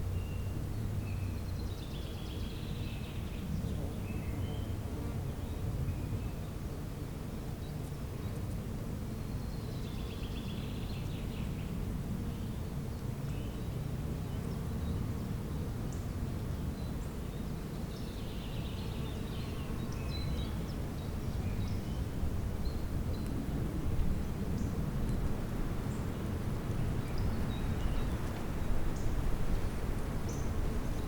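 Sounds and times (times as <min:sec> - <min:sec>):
birds singing: 0:15.9 - 0:23.3, 0:25.9 - 0:29.3, 0:30.2 - 0:31.0.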